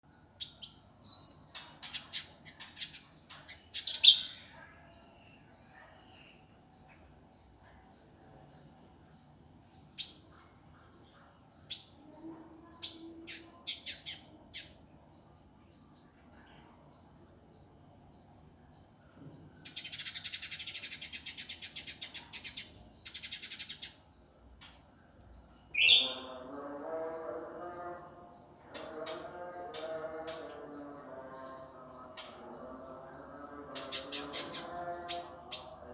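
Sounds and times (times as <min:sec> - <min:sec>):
songbird singing harsh song: 0:25.7 - 0:26.4.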